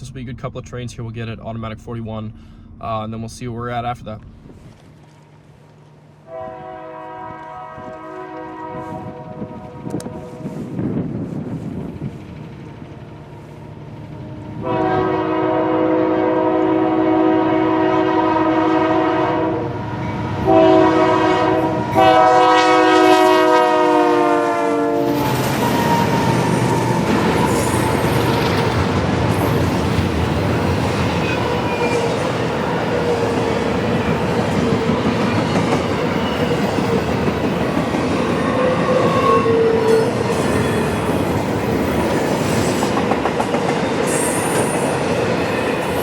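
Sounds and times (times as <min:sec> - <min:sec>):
locomotive horn blasts: 0:06.2 - 0:10.7, 0:14.6 - 0:27.8, 0:38.5 - 0:40.2
train wheels clacking on rails: 0:25.2 - 0:46.0.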